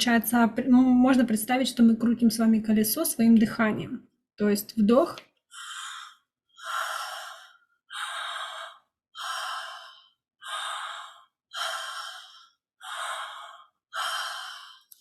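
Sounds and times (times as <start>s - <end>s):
woman breathing through mouth: 5.5s - 15.0s.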